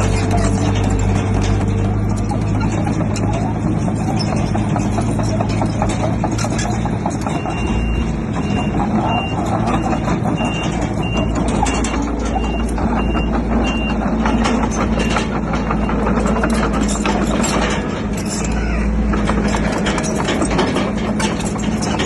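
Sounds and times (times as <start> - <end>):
diesel engine running: 0.0 - 22.0
reversing alarm beeping: 7.2 - 16.8.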